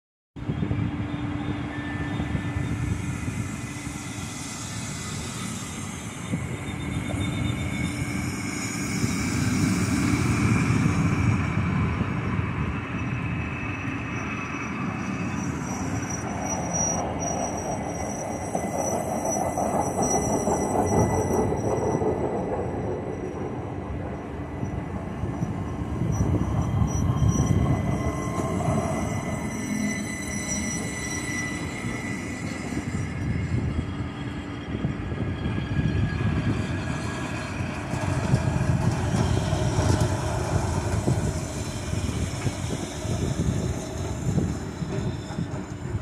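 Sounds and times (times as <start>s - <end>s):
train wheels rumbling on rail: 0.4s - 46.0s.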